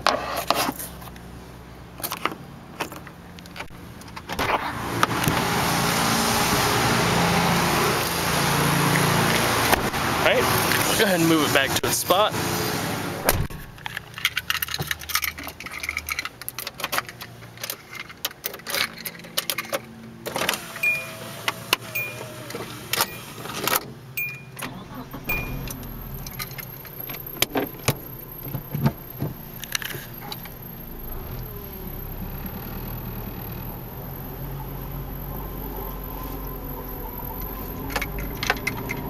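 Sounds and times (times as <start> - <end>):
handling clicks and knocks: 13.6 - 20.5
warning chime beeping: 20.8 - 21.3, 21.9 - 22.4, 24.2 - 27.1.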